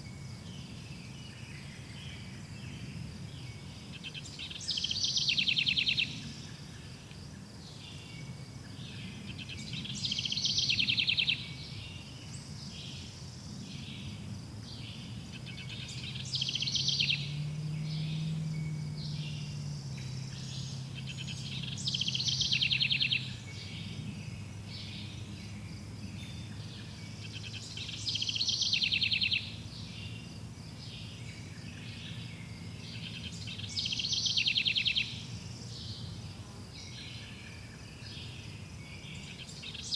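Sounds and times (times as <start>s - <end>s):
bird chirps: 14.8s - 30.2s, 30.8s - 36.1s.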